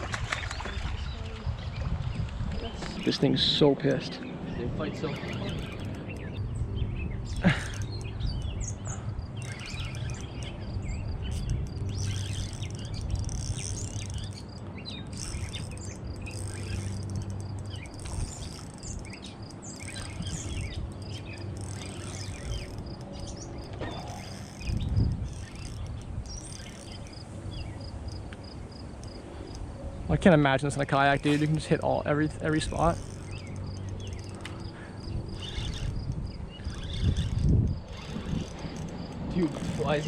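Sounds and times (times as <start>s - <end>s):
birds chirping: 0.0s - 40.0s
insect trilling: 9.2s - 29.6s, 31.2s - 40.0s.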